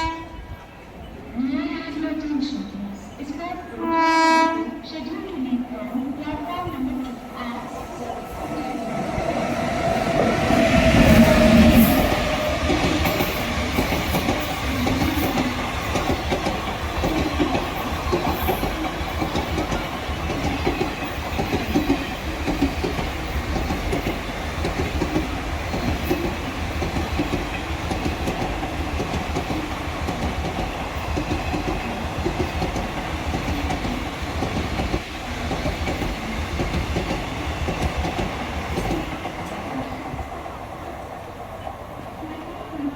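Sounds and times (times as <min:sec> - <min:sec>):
locomotive passing with whine: 0:05.0 - 0:42.9
coaches clattering over rail joints: 0:06.3 - 0:40.3.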